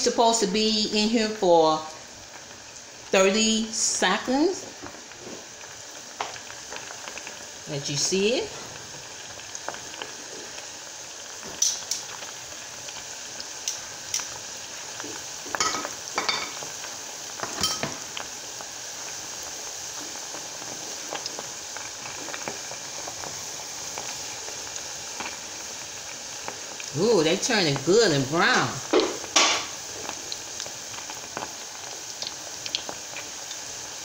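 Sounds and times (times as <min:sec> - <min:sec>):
food deep-frying in oil: 0:00.0 - 0:34.0.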